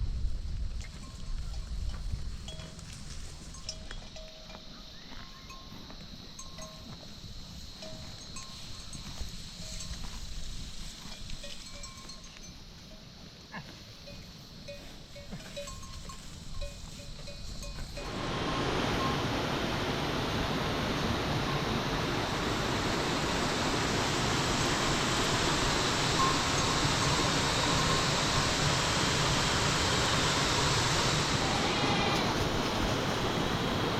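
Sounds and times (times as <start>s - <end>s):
livestock bells clinking: 0.9s - 13.2s, 14.0s - 18.2s, 25.2s - 29.2s
heavy rain hissing: 18.0s - 33.9s.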